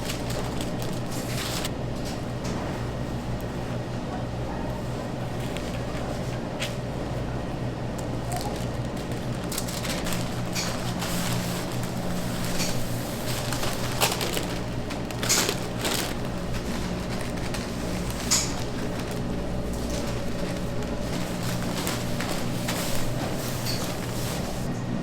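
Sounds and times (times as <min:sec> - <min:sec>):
low machine hum: 0:00.0 - 0:25.0
utensils and trays clicking: 0:08.3 - 0:24.4.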